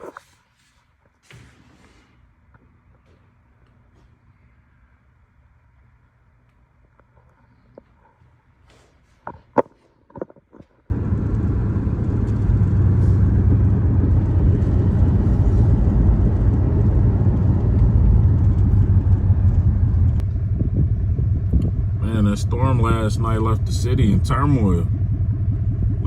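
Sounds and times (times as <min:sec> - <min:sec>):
moving car rumble: 0:10.9 - 0:26.0.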